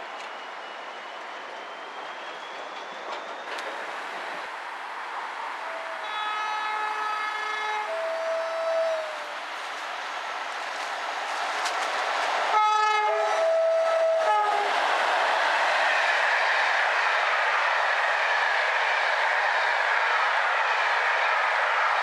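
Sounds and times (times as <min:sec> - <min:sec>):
train running past: 0:00.0 - 0:22.0
two-note train horn: 0:05.6 - 0:09.2.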